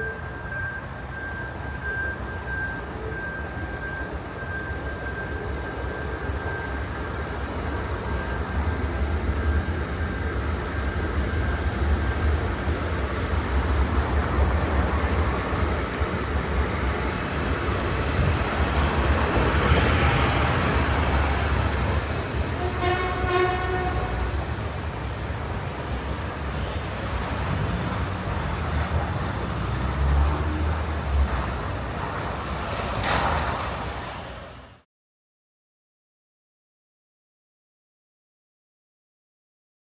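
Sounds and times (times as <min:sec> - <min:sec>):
train rumbling over crossing: 0:00.0 - 0:34.8
train horn: 0:22.6 - 0:24.4.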